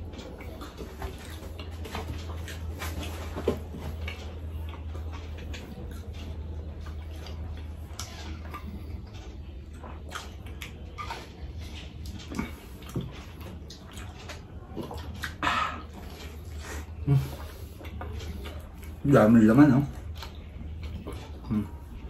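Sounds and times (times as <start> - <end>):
wet chewing and mouth smacks: 0.0 - 19.0, 19.8 - 22.0
steady low hum: 0.0 - 22.0.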